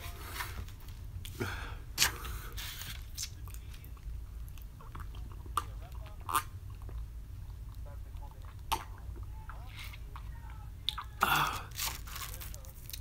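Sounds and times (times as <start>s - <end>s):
person chewing noodles: 1.2s - 9.3s.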